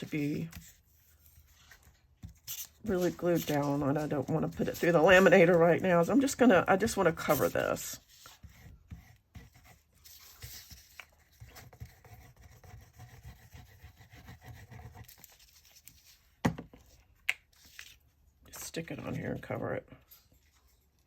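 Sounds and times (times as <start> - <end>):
paper rustling: 0.0 - 12.0.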